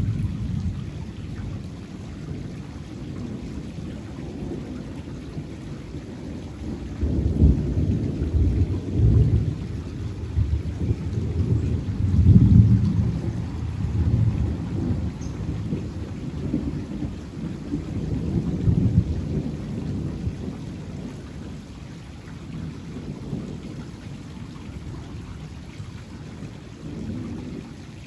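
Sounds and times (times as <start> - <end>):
thunder rumbling: 0.0 - 2.5, 3.1 - 21.2.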